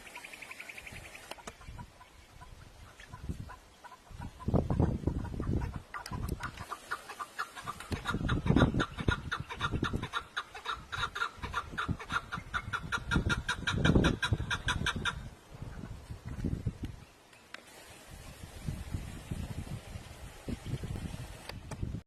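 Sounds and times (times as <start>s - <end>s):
chickens clucking: 0.0s - 16.6s.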